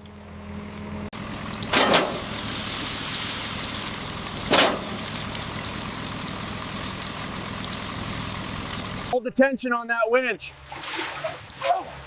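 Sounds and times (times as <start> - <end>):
winch humming: 0.0 - 9.2.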